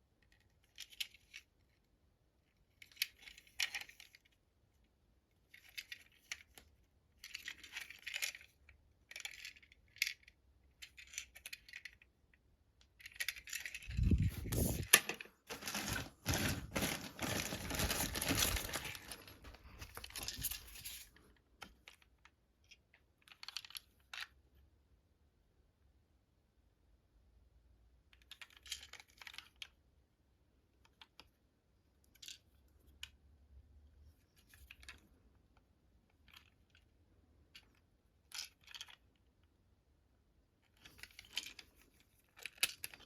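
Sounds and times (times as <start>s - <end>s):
plastic toy parts clicking: 5.5s - 18.9s
plastic packaging rustling: 13.8s - 21.1s
wrapping crinkling and tearing: 15.5s - 20.8s.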